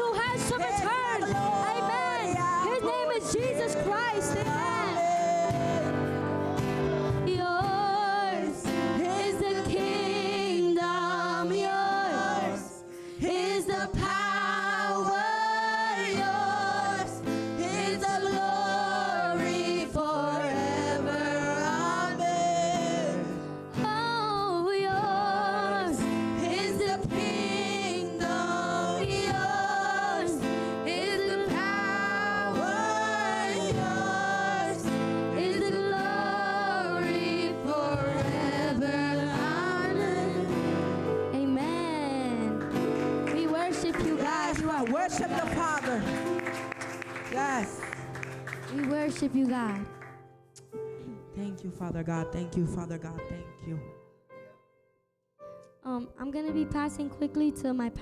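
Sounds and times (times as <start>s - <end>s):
voices singing with vibrato: 0.0s - 47.9s.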